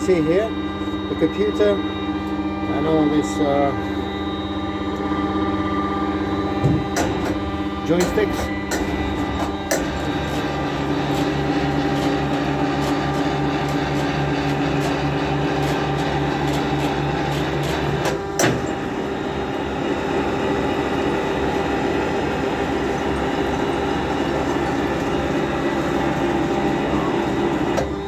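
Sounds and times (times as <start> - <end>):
sawmill machinery humming: 0.0 - 28.0
machinery clunk: 6.5 - 19.0.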